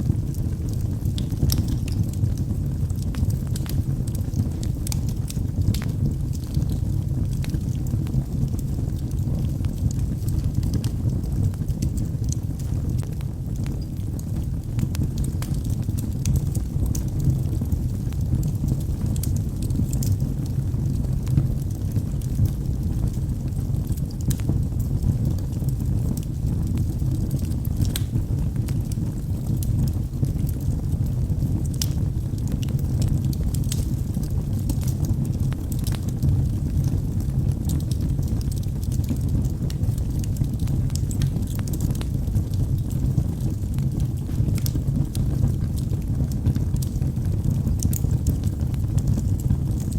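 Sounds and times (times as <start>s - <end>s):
low rumble of flames: 0.0s - 49.9s
wood crackling and popping: 0.0s - 49.9s.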